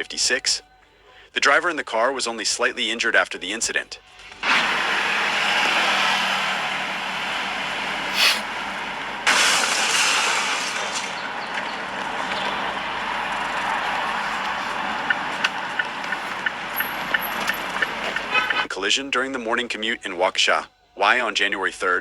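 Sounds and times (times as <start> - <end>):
traffic hiss: 4.4 - 18.7.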